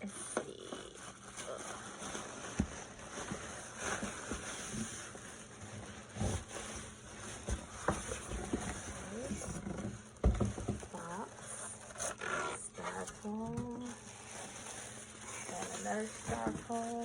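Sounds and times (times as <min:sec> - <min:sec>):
cardboard rustling and scraping: 0:00.9 - 0:17.0
knocks and thumps: 0:07.4 - 0:11.0.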